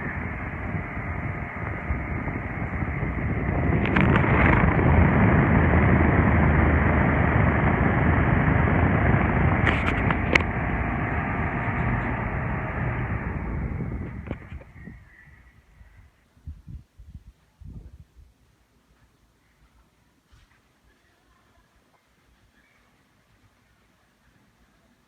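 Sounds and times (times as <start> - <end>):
table fan running: 0.0 - 15.2.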